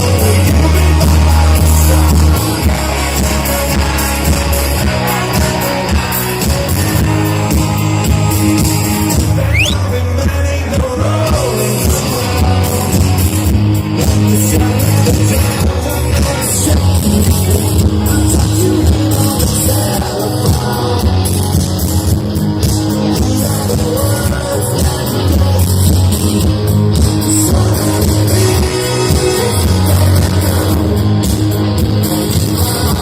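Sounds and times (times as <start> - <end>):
person singing: 0.0 - 21.9, 22.8 - 33.0
bass guitar: 0.0 - 33.0
drums: 0.0 - 33.0
electric guitars: 0.0 - 33.0.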